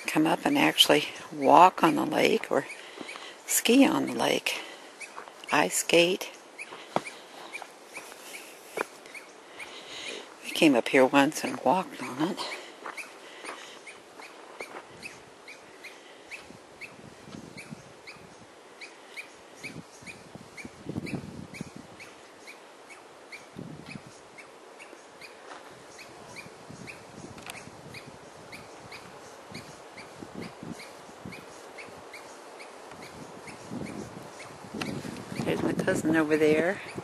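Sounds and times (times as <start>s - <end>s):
bird chirping: 0.0s - 35.6s
wind on microphone: 16.3s - 18.6s, 19.6s - 22.3s, 23.4s - 24.4s, 25.6s - 37.0s.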